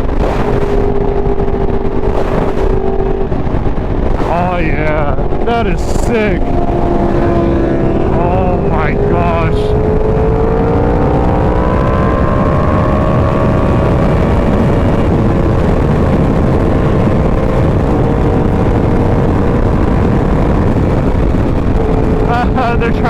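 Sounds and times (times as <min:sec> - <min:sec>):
motorcycle engine cruising: 0:00.0 - 0:23.0
wind rumble: 0:00.0 - 0:23.0.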